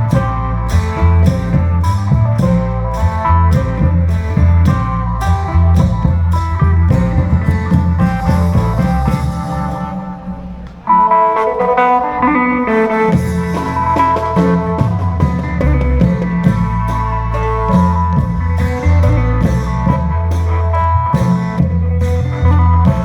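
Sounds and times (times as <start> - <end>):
drums beating a steady rhythm: 0.0 - 23.0
reed mouth organ melody: 6.4 - 15.4.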